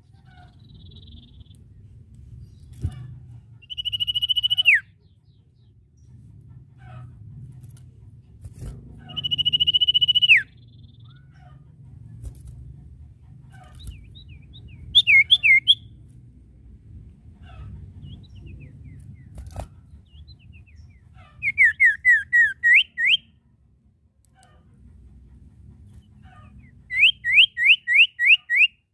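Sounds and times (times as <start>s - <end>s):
low hum: 0.0s - 27.5s
faint bird chirps: 2.5s - 5.6s
songbird whistling sliding notes: 3.6s - 4.8s, 9.1s - 10.5s.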